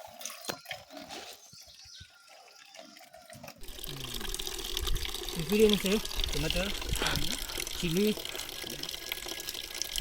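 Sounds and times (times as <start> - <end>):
water dripping and trickling: 0.0 - 10.0
running water rushing: 3.6 - 10.0.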